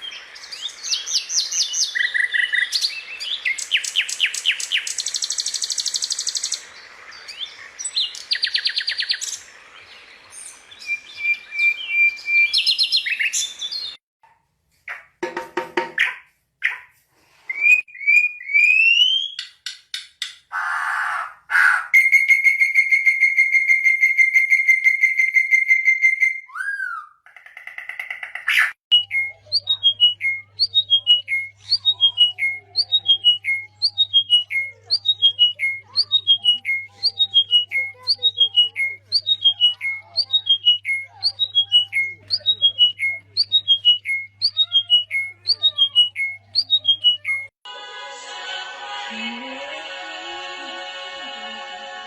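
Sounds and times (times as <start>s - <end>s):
whistled bird note: 20.6s - 27.2s
music: 47.7s - 52.0s.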